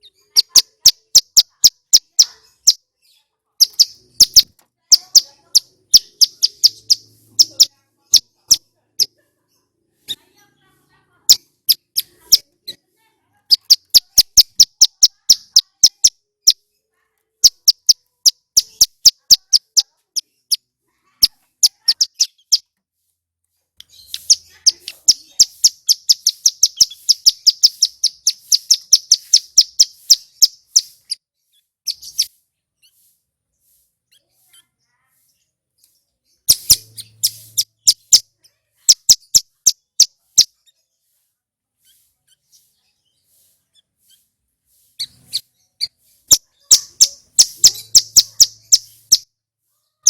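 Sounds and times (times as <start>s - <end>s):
bird singing rapid high notes: 0.0s - 9.1s, 13.5s - 16.6s, 17.4s - 20.6s, 21.2s - 22.7s, 23.8s - 31.2s, 31.9s - 32.4s, 36.3s - 40.6s, 45.0s - 49.3s.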